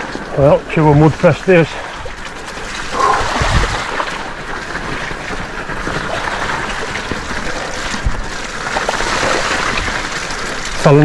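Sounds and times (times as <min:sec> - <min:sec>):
bike tyres in mud: 0:00.0 - 0:11.0
wind on microphone: 0:00.8 - 0:08.4.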